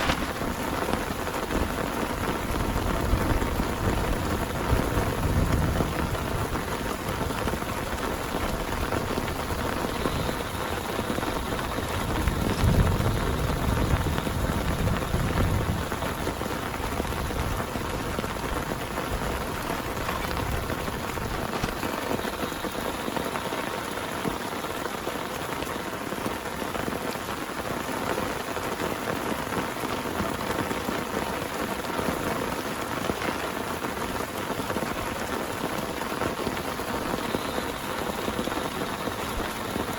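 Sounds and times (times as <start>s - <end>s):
deep thunder rumble: 0.0s - 23.2s
heavy rain pouring: 0.0s - 39.9s.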